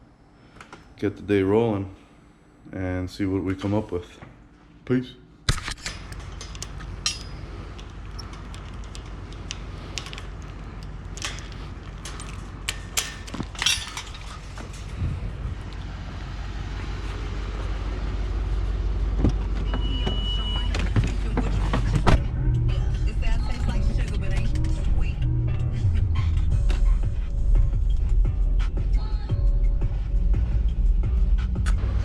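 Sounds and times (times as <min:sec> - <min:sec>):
clicks and knocks: 0:05.5 - 0:14.8
vehicle engine rumble: 0:05.8 - 0:19.9.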